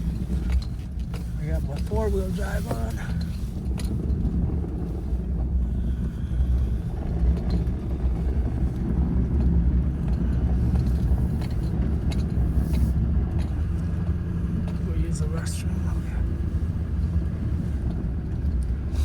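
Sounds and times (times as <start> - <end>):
engine and tyre rumble: 0.0 - 19.0.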